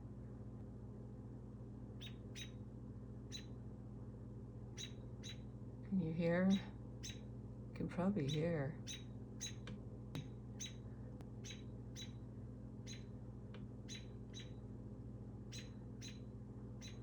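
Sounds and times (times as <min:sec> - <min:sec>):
birds chirping high peeps: 0:02.0 - 0:02.6, 0:03.3 - 0:03.6, 0:04.7 - 0:05.5, 0:06.3 - 0:07.3, 0:08.2 - 0:09.6, 0:10.2 - 0:13.2, 0:13.8 - 0:14.6, 0:15.4 - 0:17.0.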